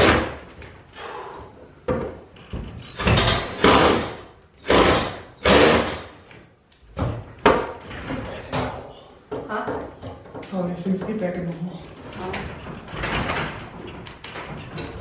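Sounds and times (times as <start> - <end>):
metal garage door hardware rattling: 2.3 - 6.2, 11.8 - 15.0.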